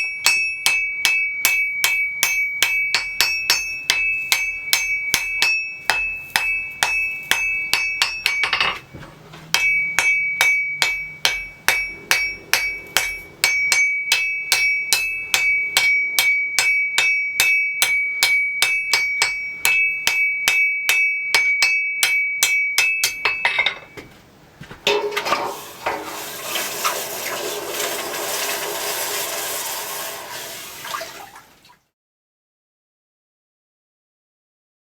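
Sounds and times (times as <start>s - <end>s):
hammer striking steel on anvil: 0.0s - 8.9s, 9.5s - 24.1s.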